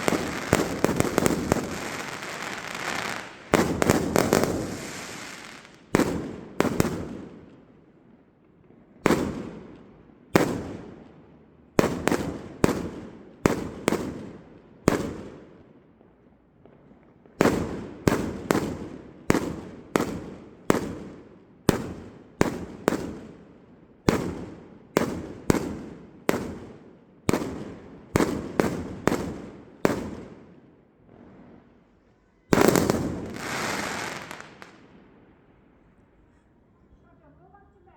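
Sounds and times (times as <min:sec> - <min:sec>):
fireworks bangs: 0:00.0 - 0:07.4, 0:11.8 - 0:15.4, 0:16.6 - 0:23.4, 0:24.0 - 0:31.6, 0:32.2 - 0:35.7.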